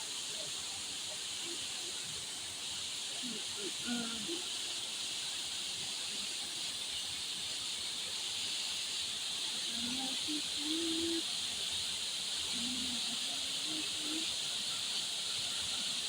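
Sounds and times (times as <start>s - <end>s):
faint distant voices: 0.0s - 16.0s
high-pitched outdoor hiss: 0.0s - 16.0s.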